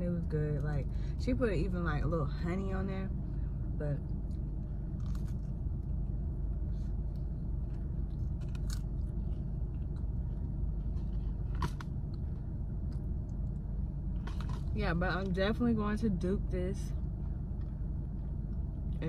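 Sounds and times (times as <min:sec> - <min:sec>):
low car rumble: 0:00.0 - 0:19.0
person chewing crunchy toast: 0:04.2 - 0:14.8.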